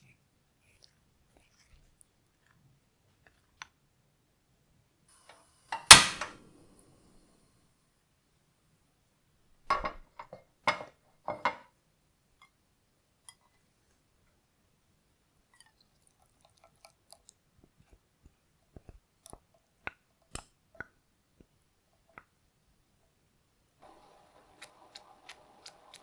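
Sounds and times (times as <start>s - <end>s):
kitchen knocks and clatters: 5.7s - 6.4s, 9.6s - 11.7s.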